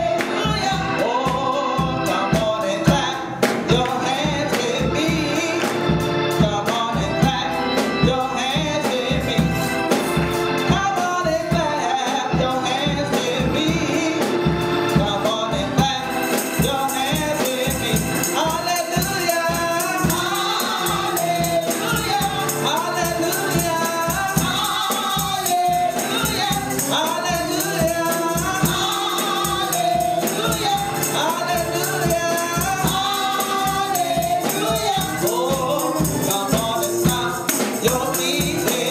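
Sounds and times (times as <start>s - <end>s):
voices singing together: 0.0s - 38.9s
shaken tambourine: 12.4s - 38.9s
steady beat: 12.5s - 38.9s.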